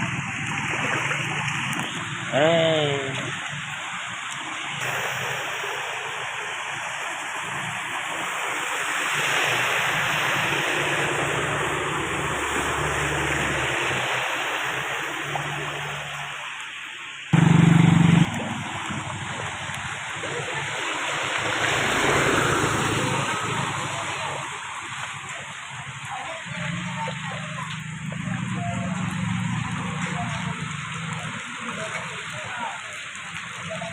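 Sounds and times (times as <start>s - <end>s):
floodwater rushing: 0.0s - 33.9s
loud deep tone: 17.4s - 18.4s.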